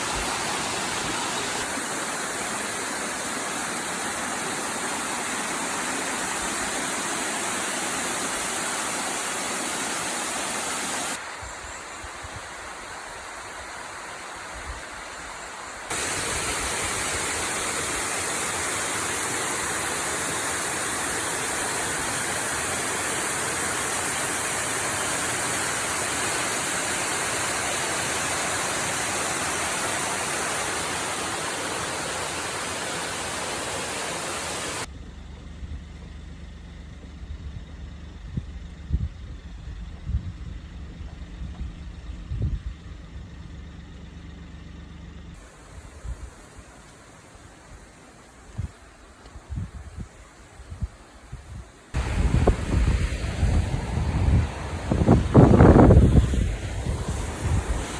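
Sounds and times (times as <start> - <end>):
waterfall rushing: 0.0 - 34.9, 51.9 - 57.9.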